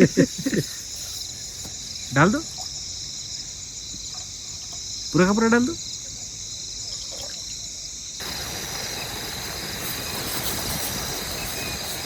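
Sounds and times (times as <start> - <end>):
low rushing hiss: 0.0 - 5.2, 8.2 - 12.0
crickets chirring: 0.0 - 12.0.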